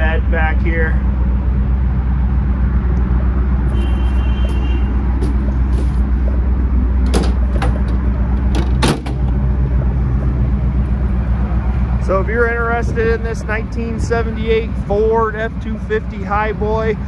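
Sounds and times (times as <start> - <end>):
engine idling with low rumble: 0.0 - 17.0
sharp engine knocks: 7.0 - 9.4.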